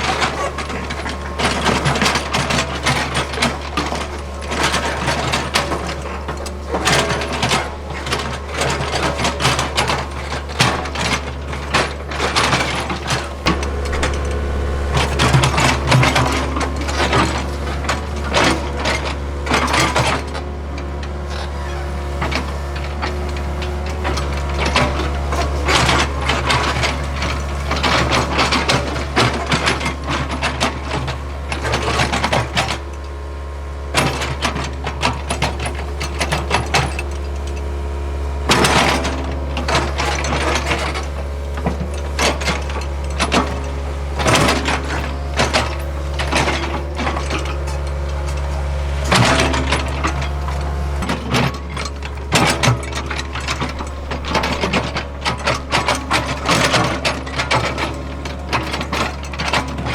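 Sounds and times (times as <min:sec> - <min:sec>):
excavator diesel engine droning: 0:00.0 - 0:59.9
clattering and scraping of soil and stone: 0:39.7 - 0:59.9.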